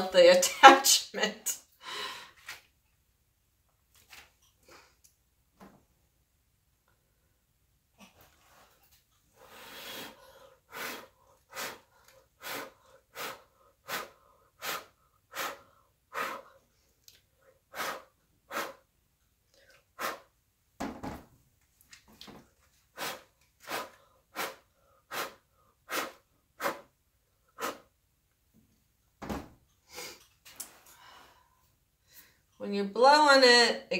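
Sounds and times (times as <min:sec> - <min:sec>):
short puffs of breath: 0:09.4 - 0:16.6, 0:17.7 - 0:18.8, 0:20.0 - 0:20.3, 0:23.0 - 0:26.9.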